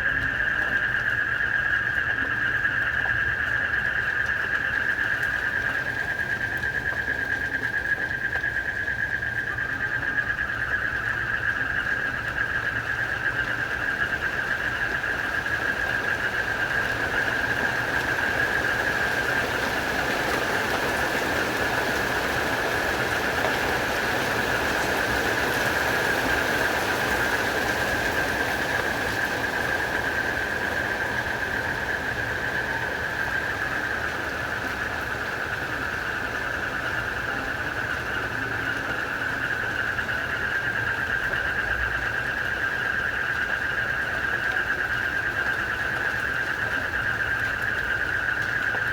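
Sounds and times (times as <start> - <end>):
crickets chirping: 0.0 - 48.9
frogs croaking: 0.0 - 48.9
rain falling: 0.0 - 48.9.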